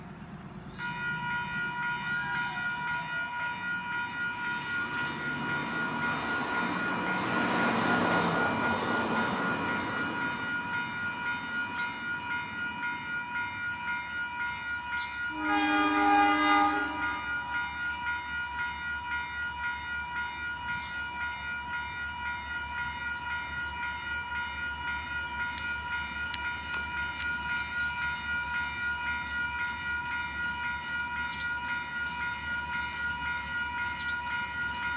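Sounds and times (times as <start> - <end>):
train passing: 0.0 - 34.9
train horn blast: 15.3 - 17.6.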